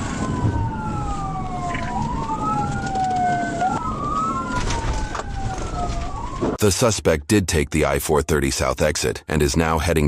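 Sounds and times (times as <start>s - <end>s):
moving car rumble: 0.0s - 6.6s
police sirens wailing: 0.0s - 6.9s.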